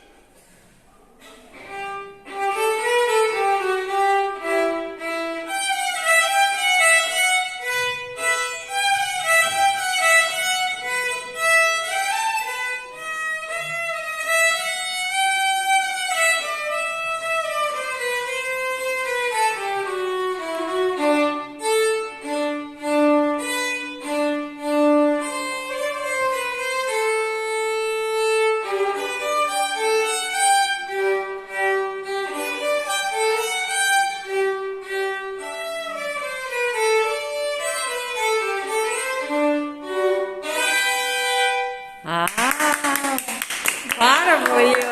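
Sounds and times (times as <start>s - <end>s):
violin playing: 1.5s - 42.3s.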